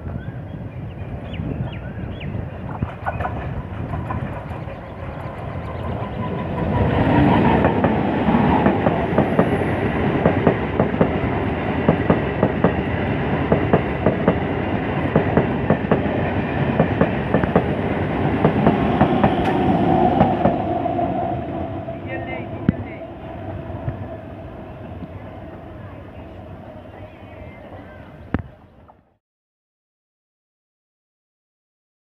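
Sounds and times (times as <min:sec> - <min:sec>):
electric train whine: 0:00.0 - 0:28.4
wheels clattering over rail joints: 0:02.6 - 0:11.2.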